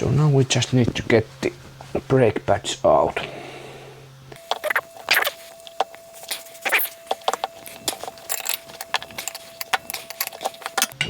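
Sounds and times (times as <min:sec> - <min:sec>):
metal parts clicking and scraping: 0:04.4 - 0:11.0.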